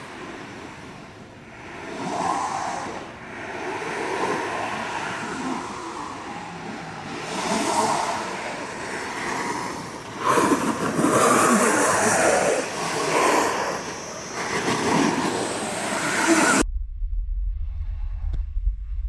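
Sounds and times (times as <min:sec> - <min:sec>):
wind on microphone: 0:00.0 - 0:19.0
board scraping over snow: 0:01.7 - 0:16.6.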